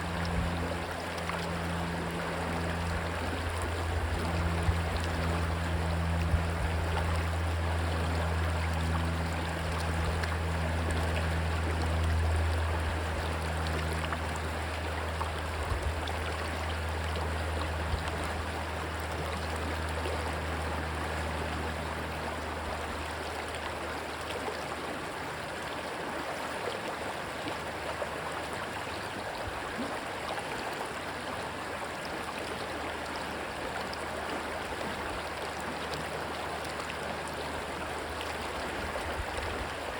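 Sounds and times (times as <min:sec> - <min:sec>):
low engine drone: 0:00.0 - 0:39.9
stream water rushing: 0:00.0 - 0:39.9.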